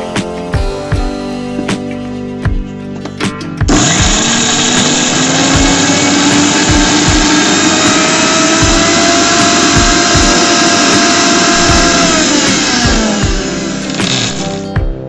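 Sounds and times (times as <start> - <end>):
blades whirring in metal jar: 3.7 - 14.6
mixer grinder motor whining: 3.7 - 14.7.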